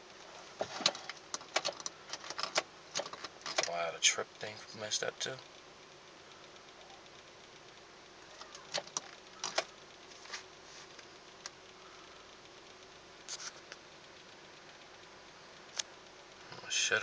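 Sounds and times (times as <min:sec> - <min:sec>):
car engine running faintly: 0:00.0 - 0:17.0
sharp clicks: 0:01.1 - 0:03.7, 0:08.3 - 0:09.8.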